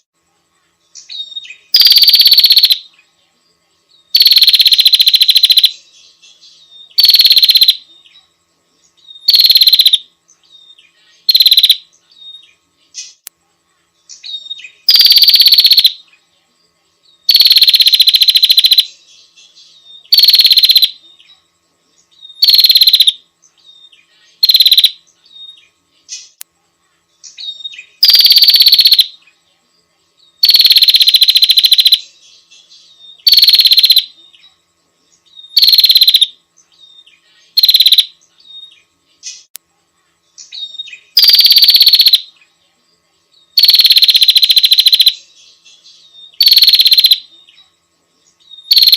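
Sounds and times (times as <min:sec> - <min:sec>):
bird buzzy rattling calls: 0:01.2 - 0:02.8, 0:04.1 - 0:05.8, 0:06.9 - 0:07.8, 0:09.2 - 0:10.0, 0:11.2 - 0:11.8, 0:14.1 - 0:16.0, 0:17.3 - 0:19.0, 0:20.0 - 0:21.0, 0:22.4 - 0:23.2, 0:24.4 - 0:25.0, 0:27.3 - 0:29.1, 0:30.4 - 0:32.1, 0:33.2 - 0:34.1, 0:35.4 - 0:36.3, 0:37.5 - 0:38.3, 0:40.4 - 0:42.3, 0:43.6 - 0:45.3, 0:46.3 - 0:47.3, 0:48.6 - 0:48.9.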